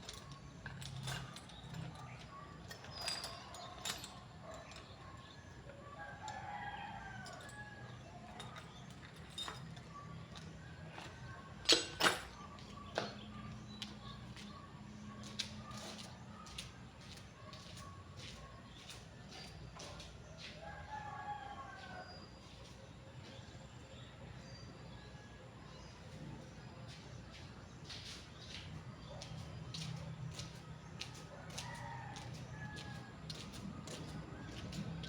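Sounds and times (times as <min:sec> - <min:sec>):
rooster crowing: 0:05.8 - 0:08.3, 0:20.6 - 0:22.3, 0:31.3 - 0:33.4.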